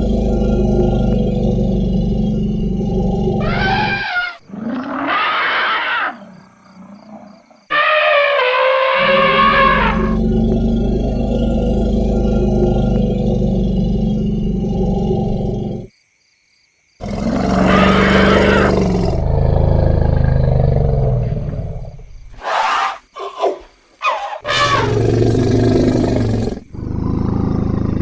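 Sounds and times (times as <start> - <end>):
elephants rumbling groans: 0.0 - 4.8, 6.8 - 15.9
elephant trumpeting: 3.4 - 4.4, 7.7 - 10.2, 22.4 - 25.0.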